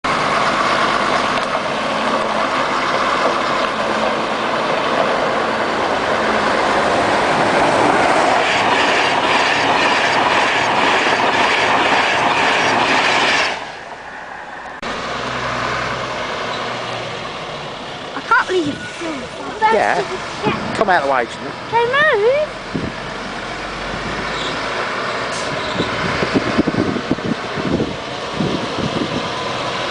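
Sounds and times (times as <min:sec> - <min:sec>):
train wheels clattering over rails: 0:00.1 - 0:13.7.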